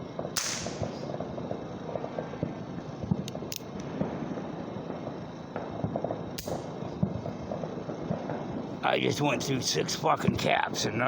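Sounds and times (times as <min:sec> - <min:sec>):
sharp cracks: 0:00.2 - 0:01.2, 0:05.6 - 0:08.4.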